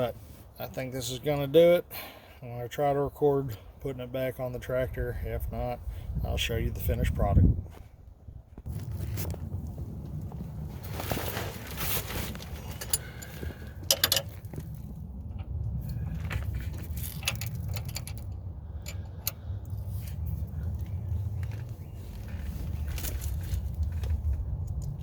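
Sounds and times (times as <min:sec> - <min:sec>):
steady low rumble: 0:03.6 - 0:25.0
metal parts clinking: 0:12.7 - 0:14.6, 0:16.4 - 0:19.4.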